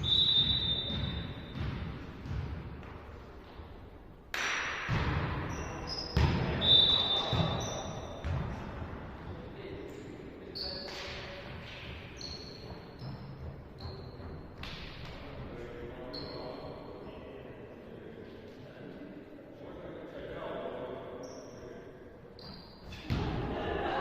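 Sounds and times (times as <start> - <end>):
sneakers squeaking on court: 0.0 - 2.5, 5.4 - 8.6, 11.7 - 14.9, 22.4 - 23.2
players' voices: 22.9 - 24.0.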